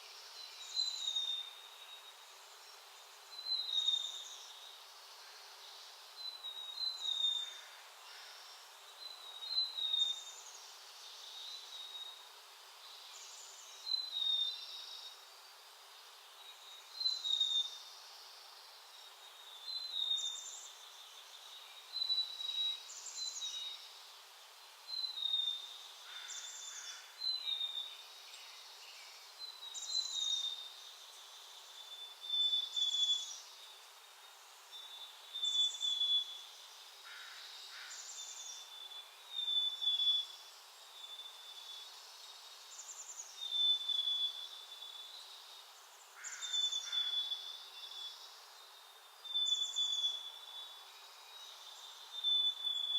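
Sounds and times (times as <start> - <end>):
songbird calling: 42.7 - 48.4, 49.2 - 52.9.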